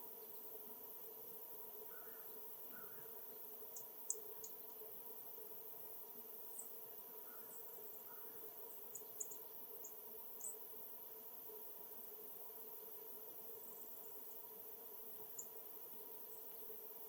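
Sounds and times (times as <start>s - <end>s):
songbirds chipping: 1.6s - 4.8s, 6.0s - 10.8s, 13.4s - 16.7s.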